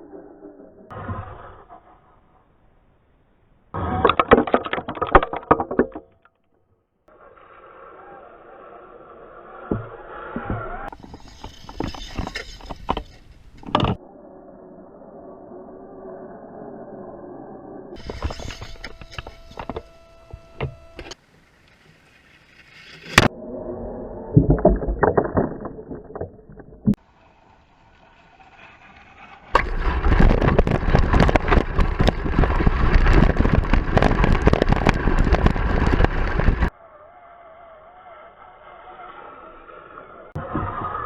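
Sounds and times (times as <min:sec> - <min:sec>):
toy truck knocks and bumps: 0:03.9 - 0:06.4, 0:09.6 - 0:14.0
faint wavering motor whine: 0:17.5 - 0:21.2.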